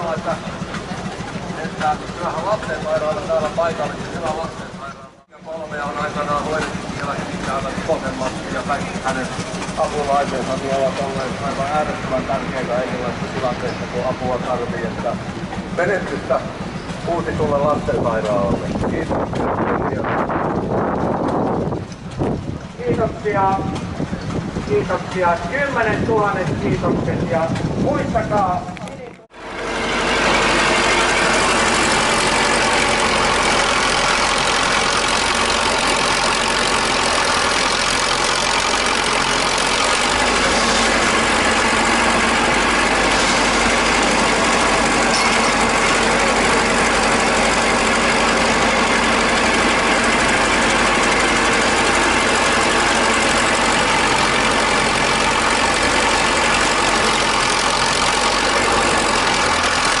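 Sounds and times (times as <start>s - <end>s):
tractor engine idling: 0.0s - 60.0s.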